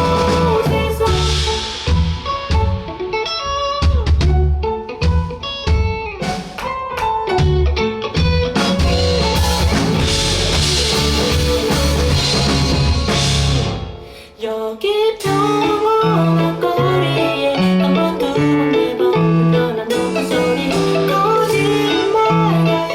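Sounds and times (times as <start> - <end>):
bass guitar: 0.0 - 14.2, 15.2 - 22.9
electric guitar: 0.0 - 14.4, 15.1 - 22.9
drums: 0.0 - 22.9.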